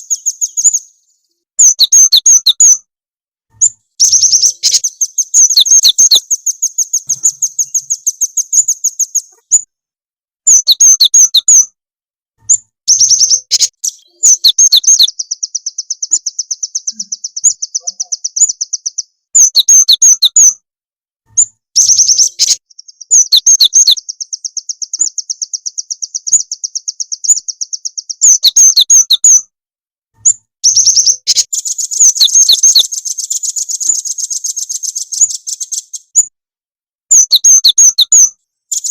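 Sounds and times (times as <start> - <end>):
songbird chirps: 0.0 - 2.9, 3.5 - 9.8, 10.4 - 11.8, 12.4 - 20.6, 21.3 - 29.5, 30.2 - 36.4, 37.1 - 38.9
fast even bird trills: 3.6 - 9.7, 30.6 - 36.0.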